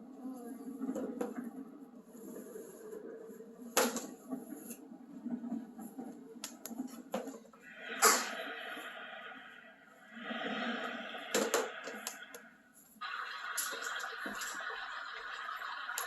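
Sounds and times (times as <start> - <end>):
white noise machine: 7.1 - 16.0.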